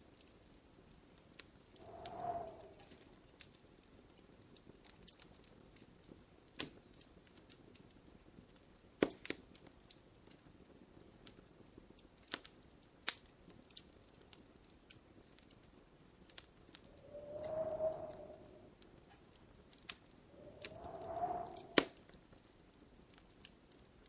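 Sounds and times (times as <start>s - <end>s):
faint low hiss: 0.8s - 3.6s, 16.1s - 23.2s
wood fire crackling: 1.4s - 24.0s.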